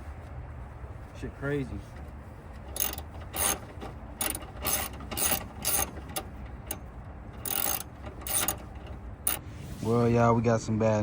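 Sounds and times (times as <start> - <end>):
ratchet wrench clicking: 2.7 - 9.4.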